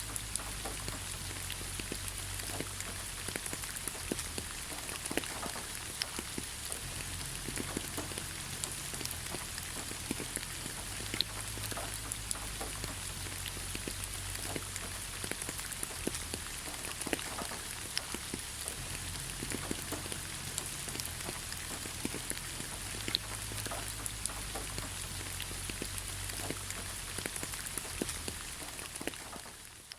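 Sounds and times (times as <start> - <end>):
faint low rumble: 0.0 - 29.7
rain hissing: 0.0 - 29.9
raindrops ticking: 0.0 - 29.9.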